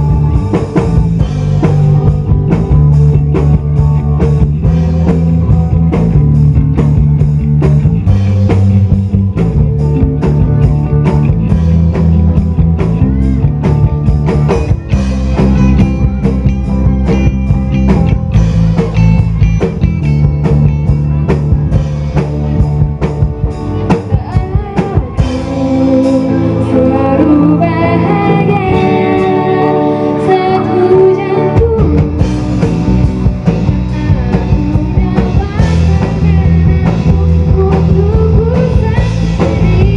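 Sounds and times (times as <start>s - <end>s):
rock band with singing: 0.0s - 39.9s.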